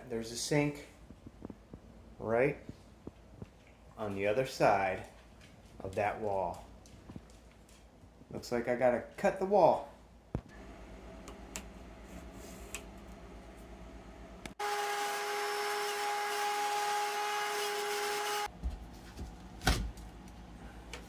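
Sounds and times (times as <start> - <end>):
power tool whining: 14.6 - 18.5.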